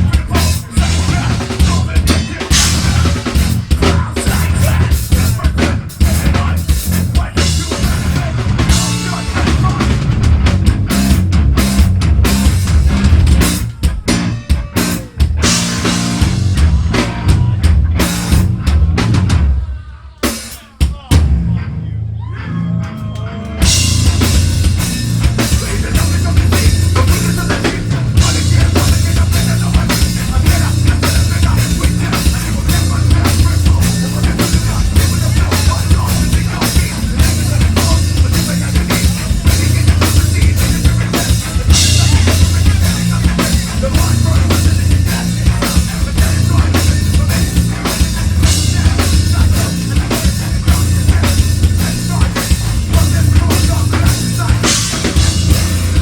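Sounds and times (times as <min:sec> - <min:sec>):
heavy metal band playing: 0:00.0 - 0:56.0
drum hits: 0:23.6 - 0:56.0.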